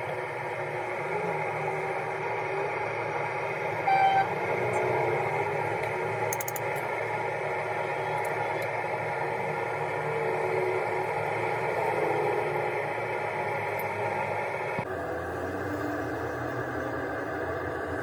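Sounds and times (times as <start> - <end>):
mechanical background noise: 0.0 - 18.0
short high beep: 3.9 - 4.3.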